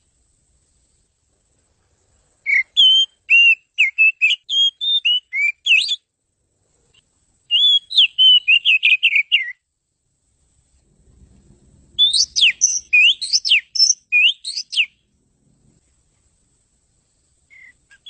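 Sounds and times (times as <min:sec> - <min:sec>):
bird singing whistled notes: 0:02.4 - 0:06.1, 0:07.5 - 0:09.7, 0:11.9 - 0:15.1, 0:17.4 - 0:18.0.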